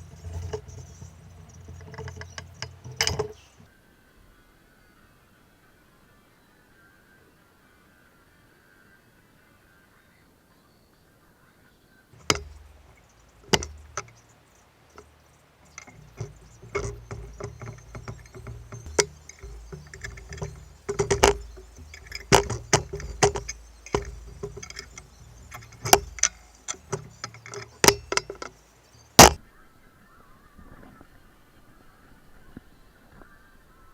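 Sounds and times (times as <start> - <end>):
low rumble of handling: 0.0 - 3.7, 12.2 - 29.4
metal parts and tools clanking: 0.0 - 3.7, 12.2 - 29.4.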